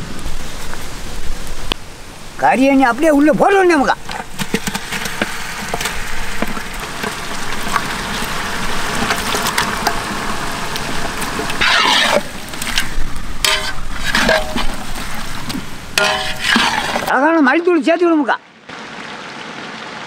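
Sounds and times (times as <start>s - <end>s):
food sizzling in hot oil: 2.8s - 17.1s.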